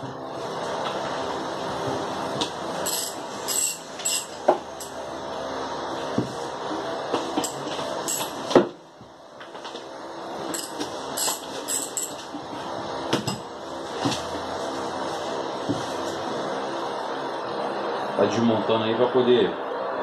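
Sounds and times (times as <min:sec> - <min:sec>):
steady background noise: 0:00.0 - 0:20.0.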